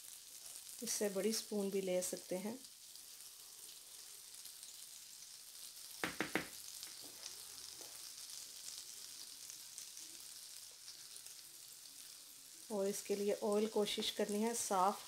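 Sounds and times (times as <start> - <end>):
fritters sizzling in hot oil: 0.0 - 15.0
quick sharp taps: 6.0 - 6.6.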